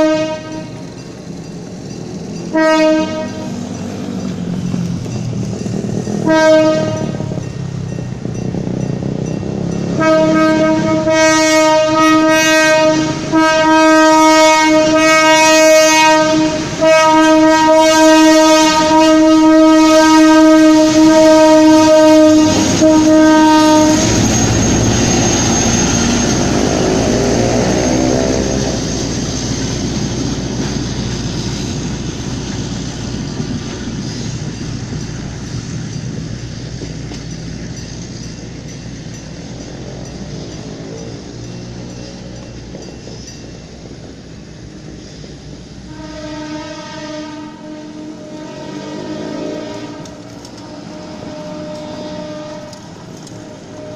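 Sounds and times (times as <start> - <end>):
train horn: 0.0 - 0.9, 2.4 - 3.6, 6.2 - 7.5, 9.9 - 29.2, 45.9 - 53.9
train wheels on rails: 0.0 - 53.9.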